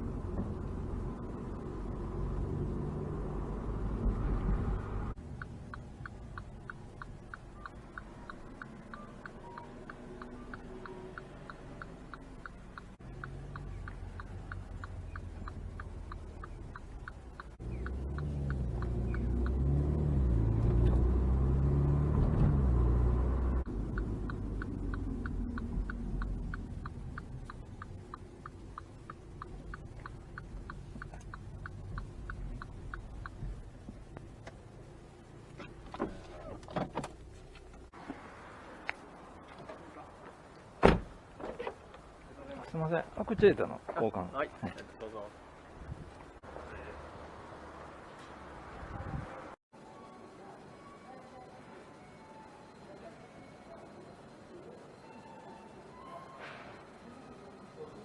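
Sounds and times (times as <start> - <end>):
turn signal ticking: 0.0 - 38.0
engine and road rumble: 0.0 - 49.7.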